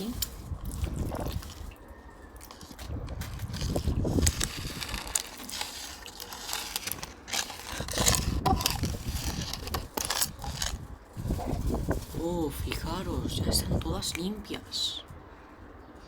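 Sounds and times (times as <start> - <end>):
toy figures clicking and rustling: 2.5 - 12.0.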